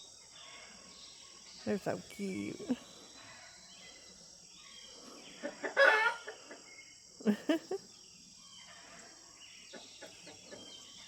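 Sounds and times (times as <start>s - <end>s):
insects buzzing: 0.0s - 11.0s
chickens clucking: 5.1s - 6.8s, 8.7s - 11.0s.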